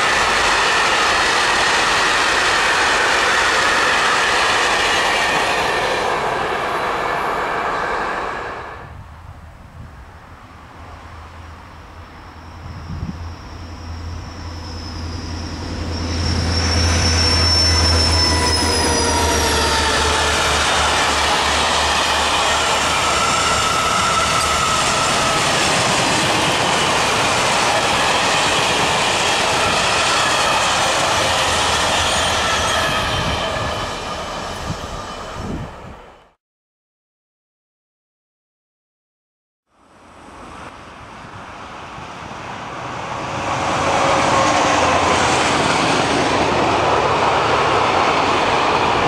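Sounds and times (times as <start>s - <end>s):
train wheel rumble: 0.0s - 36.2s, 40.3s - 49.0s
diesel locomotive engine drone: 0.0s - 36.4s, 39.7s - 49.0s
squealing wheels: 12.0s - 35.8s.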